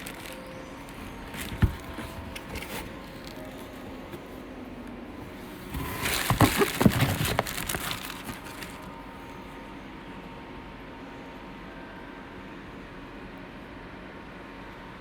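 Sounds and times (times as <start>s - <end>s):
objects rustling and knocking: 0.0s - 4.6s, 5.2s - 9.0s
faint background hum: 0.0s - 15.0s.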